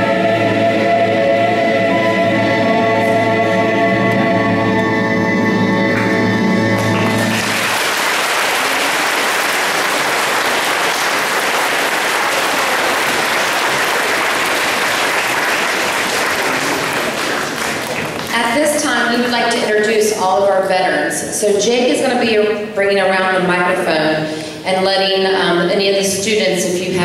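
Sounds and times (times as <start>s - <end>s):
held music chord: 0.0s - 7.7s
audience applauding: 6.8s - 18.4s.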